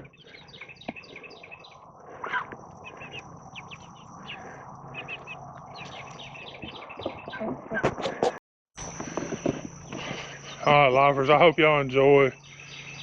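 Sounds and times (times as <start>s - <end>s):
chicks chirping and peeping: 0.0s - 8.3s.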